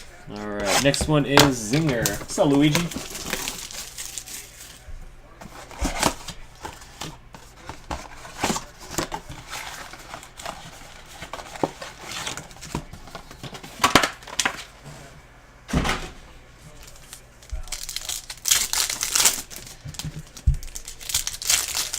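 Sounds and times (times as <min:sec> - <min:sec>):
cardboard and foil ripping: 0:00.0 - 0:04.9, 0:16.8 - 0:21.9
card pack wrappers crinkling: 0:00.0 - 0:14.8, 0:16.7 - 0:21.9.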